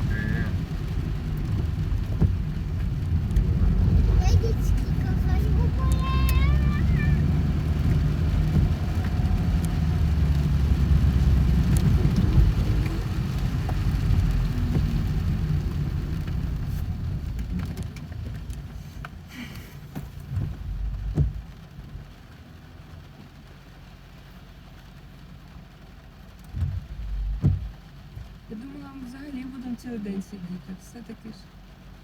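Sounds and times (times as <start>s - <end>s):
car road noise: 0.0s - 32.0s.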